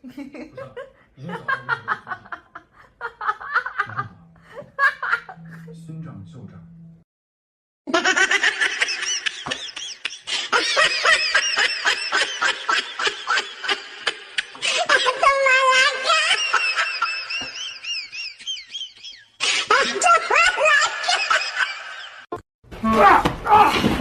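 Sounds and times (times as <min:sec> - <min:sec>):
high-pitched laughter: 0:07.9 - 0:22.3.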